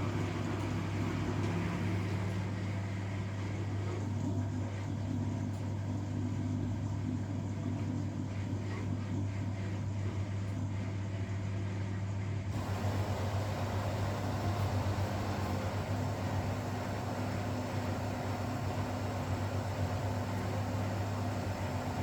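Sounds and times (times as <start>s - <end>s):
washing machine motor hum: 0.0s - 22.0s
washing machine rush of noise: 0.0s - 22.0s.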